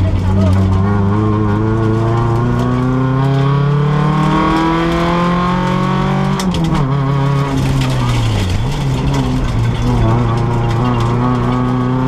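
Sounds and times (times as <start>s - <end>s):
rally car engine revving: 0.0s - 12.0s
gear shift clatter: 4.2s - 12.0s.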